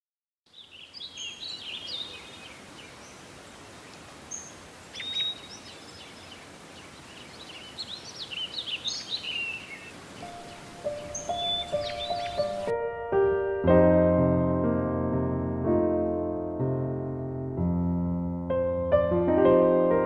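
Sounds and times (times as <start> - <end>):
faint hiss: 0.5 - 12.7
small birds chirping: 0.5 - 12.7
music: 10.2 - 20.0.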